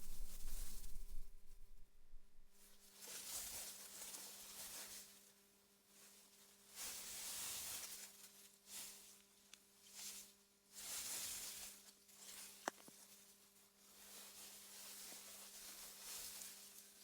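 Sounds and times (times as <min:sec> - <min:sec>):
wind rustling through grass: 0:00.0 - 0:02.6
low steady hum: 0:00.0 - 0:02.7.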